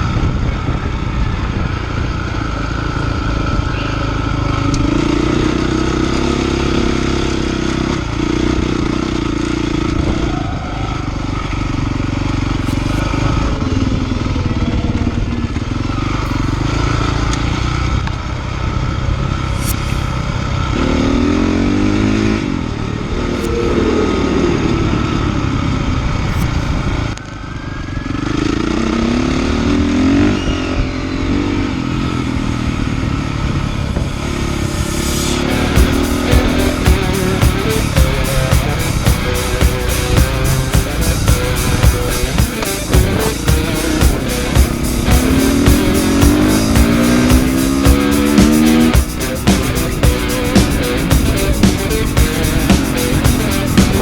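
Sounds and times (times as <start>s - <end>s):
dirt bike engine revving: 28.3s - 54.0s.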